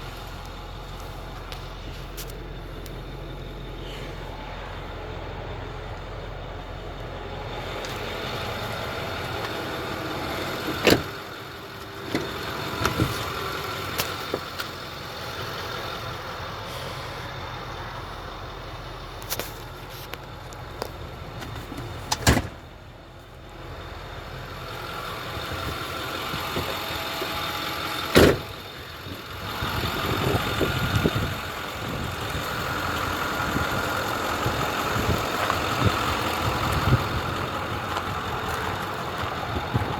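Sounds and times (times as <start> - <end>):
truck engine idling: 0.0 - 39.9
doors shutting knocks: 10.6 - 11.2, 22.1 - 22.6, 28.1 - 28.5.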